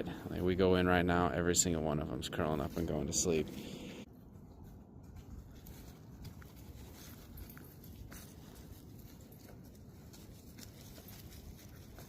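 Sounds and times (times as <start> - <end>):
puppies' paws pattering: 4.2 - 12.0.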